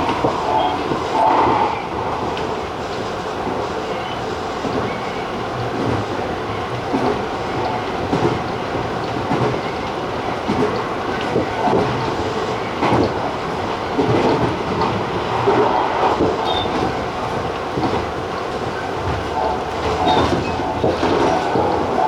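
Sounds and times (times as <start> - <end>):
train wheels rumbling on rail: 0.0 - 22.0
clacks over rail joints: 5.6 - 22.0.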